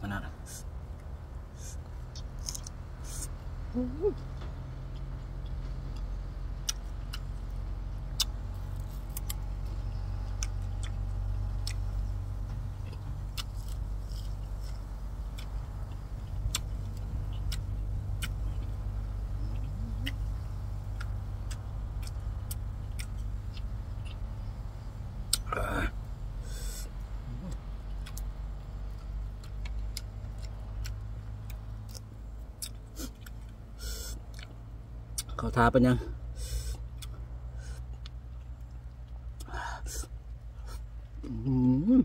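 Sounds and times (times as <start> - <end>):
steady low hum: 0.0 - 42.0
person chewing crunchy vegetables: 1.6 - 3.3, 4.9 - 34.6.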